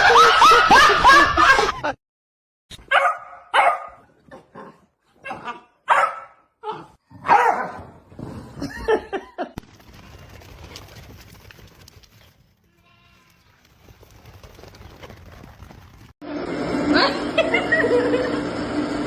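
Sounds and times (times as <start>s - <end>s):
dog barking and yipping: 2.8s - 8.0s.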